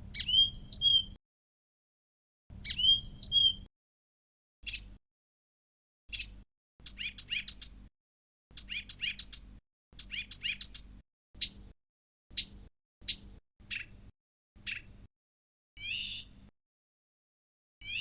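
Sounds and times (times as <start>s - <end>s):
warbler song: 0.0s - 1.2s, 2.5s - 3.7s, 4.6s - 5.0s, 6.1s - 7.9s, 8.5s - 15.1s, 15.8s - 16.5s, 17.8s - 18.0s.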